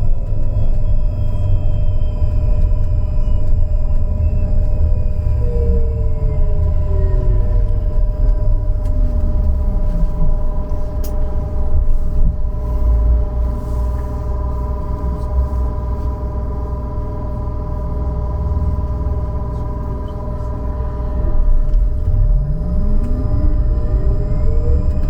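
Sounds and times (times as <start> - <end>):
electrical hum: 0.0 - 25.0
low rumble: 0.0 - 25.0
electric motor whine: 1.0 - 13.2, 20.9 - 25.0.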